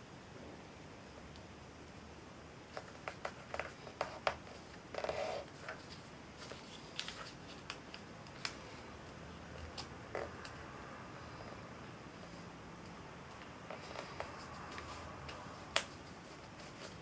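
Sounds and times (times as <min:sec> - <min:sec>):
paper crinkling and tapping: 0:02.7 - 0:04.7, 0:05.5 - 0:08.6
paper rustling: 0:02.7 - 0:08.8.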